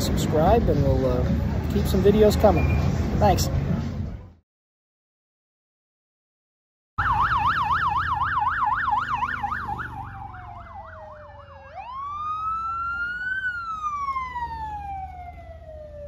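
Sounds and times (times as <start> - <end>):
electronic siren: 7.0 - 16.0.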